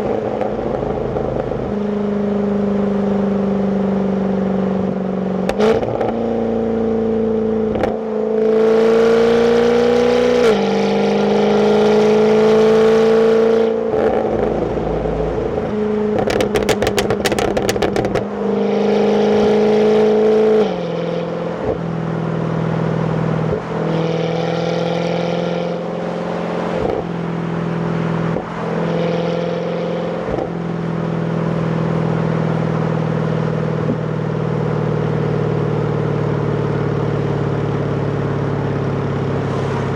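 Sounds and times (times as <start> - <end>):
car engine revving: 7.7 - 21.8
sharp exhaust cracks: 16.2 - 18.2.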